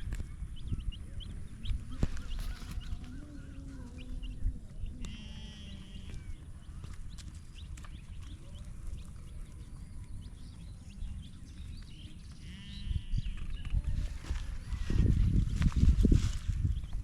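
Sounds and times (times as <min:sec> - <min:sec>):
birds chirping: 0:00.0 - 0:17.0
farm animals calling: 0:00.9 - 0:13.7.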